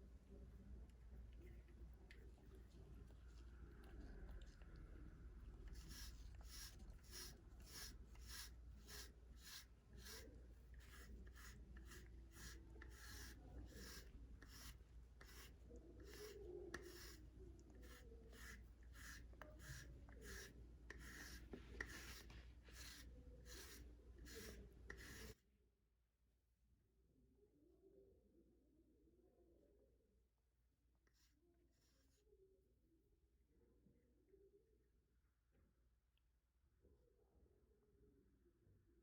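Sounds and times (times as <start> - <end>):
brush stroking cat fur: 5.3 - 25.4.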